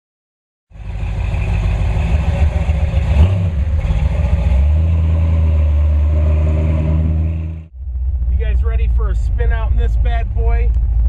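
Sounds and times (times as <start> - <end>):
car engine running lumpy: 0.7 - 4.9, 7.7 - 11.0.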